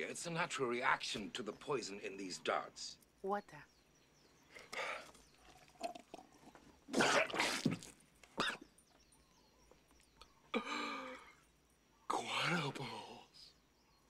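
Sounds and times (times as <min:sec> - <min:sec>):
man coughing and spluttering: 0:06.9 - 0:08.7.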